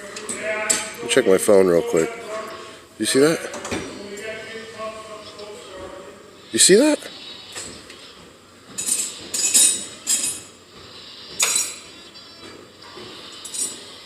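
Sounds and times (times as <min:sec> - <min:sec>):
hard objects clinking: 0:08.7 - 0:10.5, 0:11.4 - 0:11.8.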